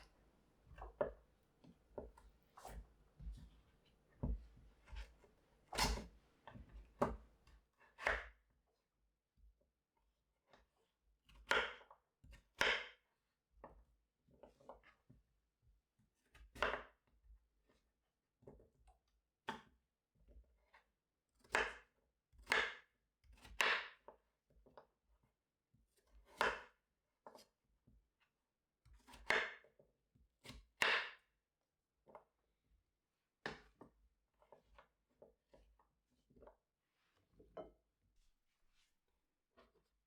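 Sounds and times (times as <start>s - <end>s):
knife cutting on cutting board: 0.6s - 7.2s.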